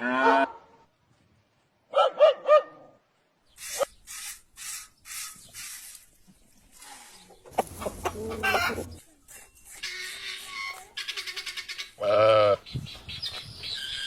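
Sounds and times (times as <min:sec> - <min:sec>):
dog barking: 0:01.9 - 0:02.9.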